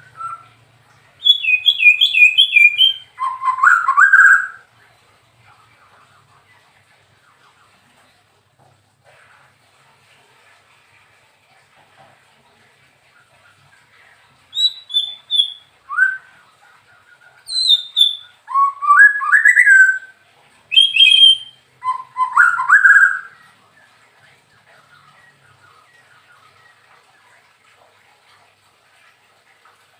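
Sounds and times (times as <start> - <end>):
bird singing whistled phrases: 0.0 - 0.6, 1.2 - 4.6, 14.5 - 16.3, 17.1 - 23.4.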